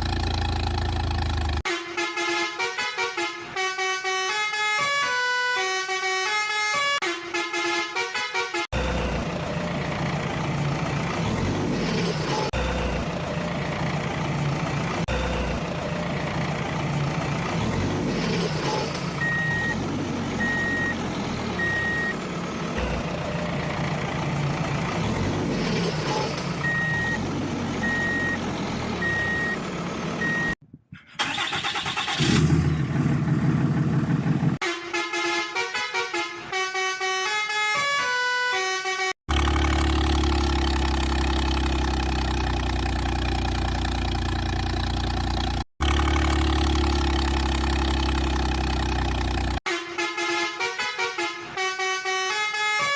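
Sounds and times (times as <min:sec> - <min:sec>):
heavy vehicle engine running: 0:00.0 - 0:01.7, 0:08.7 - 0:30.6, 0:31.3 - 0:34.6, 0:39.3 - 0:49.6
horn blasts: 0:01.6 - 0:08.8, 0:34.6 - 0:39.2, 0:49.7 - 0:52.9
high beeps: 0:29.0 - 0:29.6.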